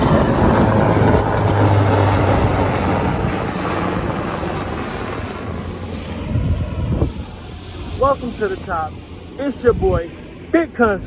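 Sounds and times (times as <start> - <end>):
small engine droning: 0.0 - 8.0.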